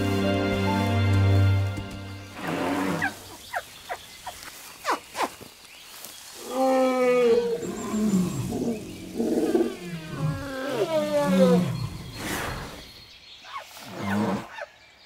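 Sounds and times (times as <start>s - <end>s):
elephants calling: 6.4s - 12.8s.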